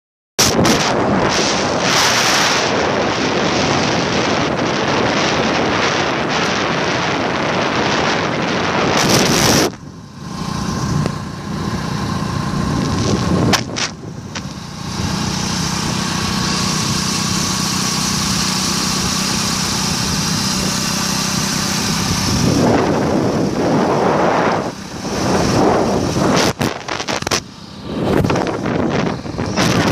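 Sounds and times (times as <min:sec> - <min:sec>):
vehicle engine running: 0:00.4 - 0:29.9
wind buffeting microphone: 0:00.4 - 0:29.9.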